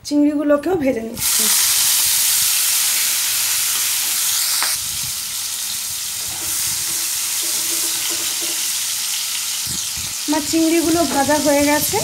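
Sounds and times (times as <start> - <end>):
prawns sizzling in hot oil: 1.2 - 12.0
spatula stirring: 6.2 - 8.8.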